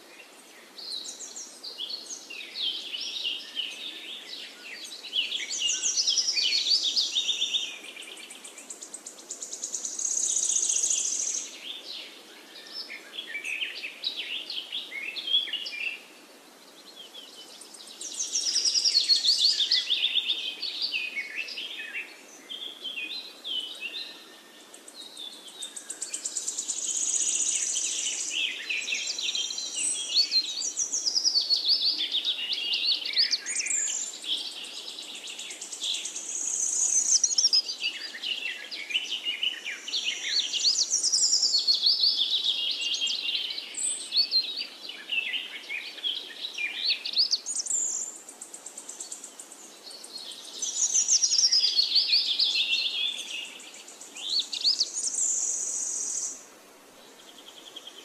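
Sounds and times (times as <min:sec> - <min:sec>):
birds chirping and whistling: 0:35.3 - 0:38.4, 0:39.0 - 0:44.6, 0:50.3 - 0:56.3.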